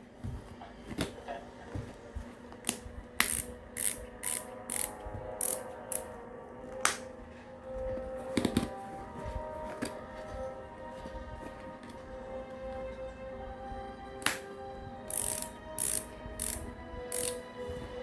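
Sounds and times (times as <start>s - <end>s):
ratcheting dial clicking: 15.1s - 17.4s.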